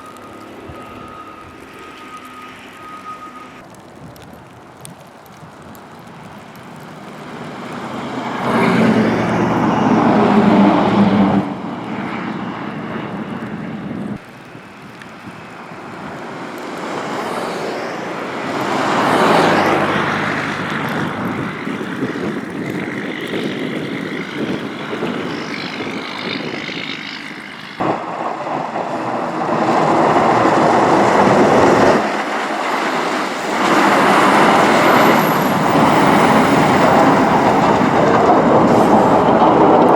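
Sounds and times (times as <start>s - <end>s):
vehicles passing: 5.3s - 39.9s.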